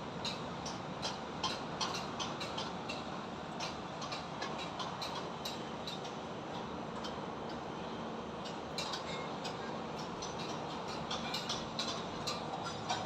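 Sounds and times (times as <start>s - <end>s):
rumble of traffic and machinery: 0.0s - 13.0s.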